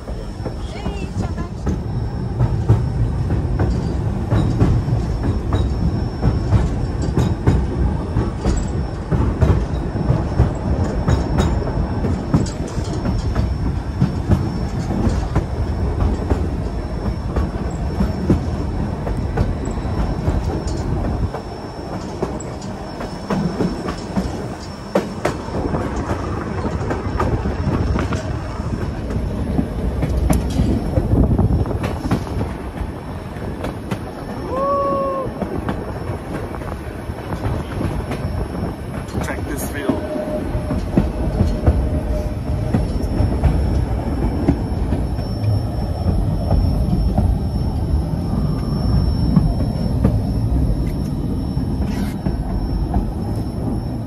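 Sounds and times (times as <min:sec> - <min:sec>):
train rumbling along track: 0:00.0 - 0:54.0
wheel squeal: 0:00.1 - 0:32.6, 0:33.8 - 0:54.0
wheel clicks over rail joints: 0:00.1 - 0:36.6.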